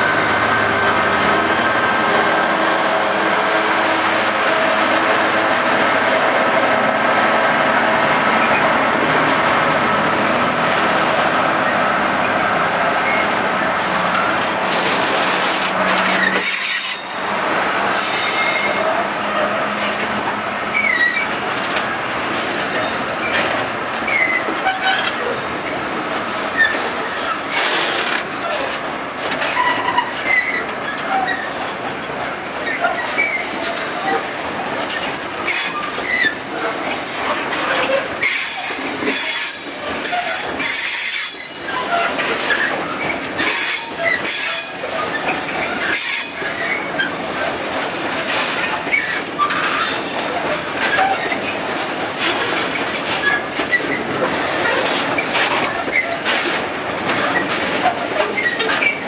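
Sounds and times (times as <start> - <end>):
train wheels rumbling on rail: 0.0 - 59.0
high wheel squeals: 16.1 - 18.8, 35.5 - 47.3
wheels clicking over rail joints: 37.5 - 59.0.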